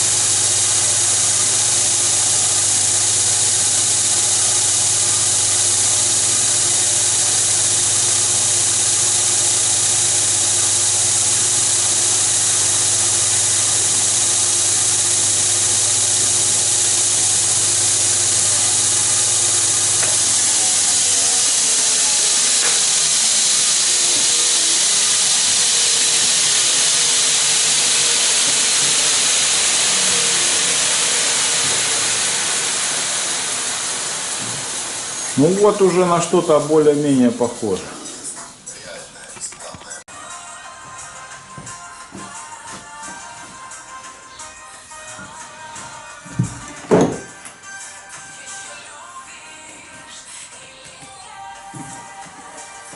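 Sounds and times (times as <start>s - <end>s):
electric grinder motor: 0.0s - 37.6s
grinder abrasive hiss on knife: 0.0s - 38.4s.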